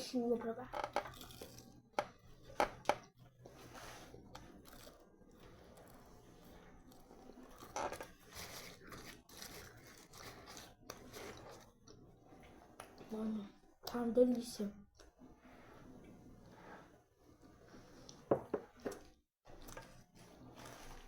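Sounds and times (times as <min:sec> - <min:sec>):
crunchy chewing of fried food: 0:01.0 - 0:13.0, 0:19.0 - 0:21.0.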